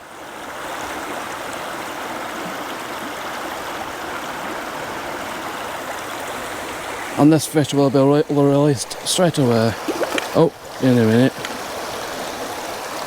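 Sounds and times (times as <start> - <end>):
river water rushing and gurgling: 0.0 - 13.0.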